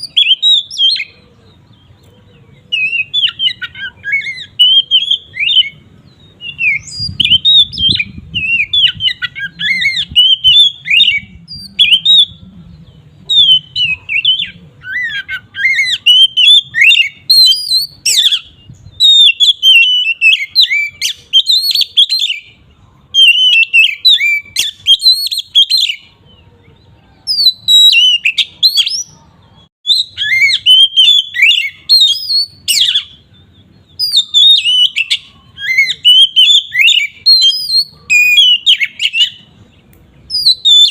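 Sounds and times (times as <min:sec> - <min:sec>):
bird singing chirps and whistles: 0:00.0 - 0:40.9.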